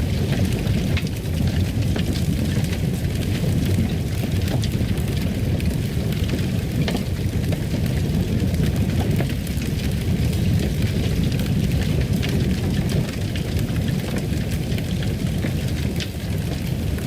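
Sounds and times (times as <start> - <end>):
fire pops and crackles: 0.0 - 17.0
low rumble of flames: 0.0 - 17.0.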